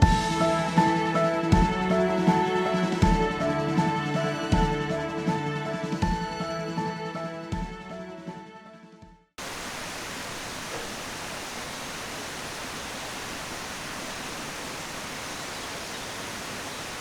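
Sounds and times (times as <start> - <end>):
running water rushing: 9.4 - 17.0.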